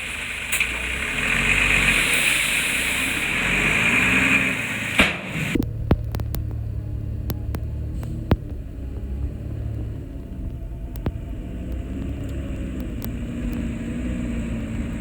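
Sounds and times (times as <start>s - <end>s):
diesel engine running: 0.0s - 15.0s
sharp clicks and knocks: 4.9s - 13.7s.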